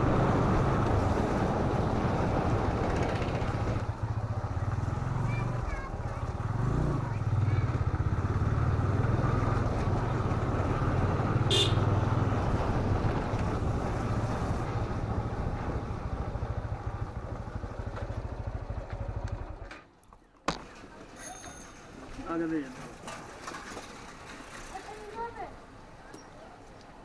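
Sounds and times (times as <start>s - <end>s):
motorcycle engine running: 0.0s - 19.7s.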